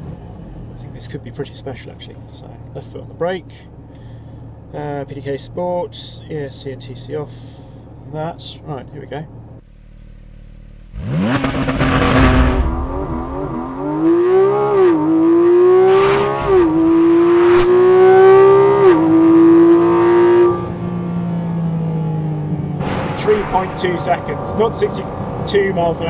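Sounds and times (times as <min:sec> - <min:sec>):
sports car engine accelerating hard: 0:09.3 - 0:26.0.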